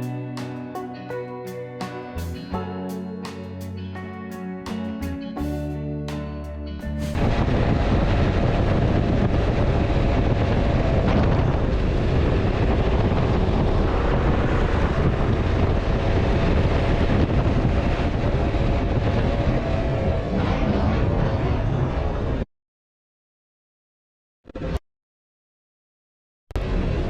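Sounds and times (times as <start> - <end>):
wind noise on microphone: 6.8 - 22.5.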